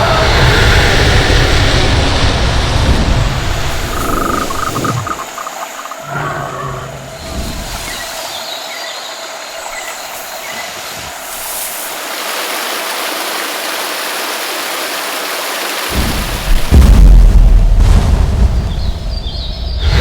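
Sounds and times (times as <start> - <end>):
thunder rumble: 0.0 - 7.8, 15.9 - 20.0
heavy rain: 0.0 - 8.5, 9.1 - 20.0.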